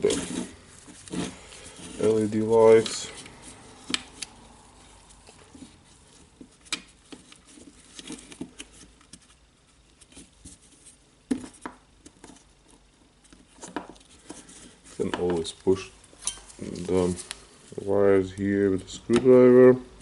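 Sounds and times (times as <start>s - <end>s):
plastic parts clicking and tapping: 11.3s - 14.4s.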